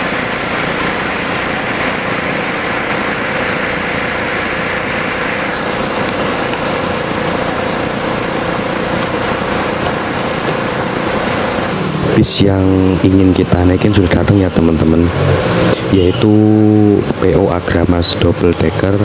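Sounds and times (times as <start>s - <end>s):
high hiss: 0.0s - 9.1s
bus engine running: 0.0s - 19.0s
mid-pitched whine: 0.0s - 19.0s.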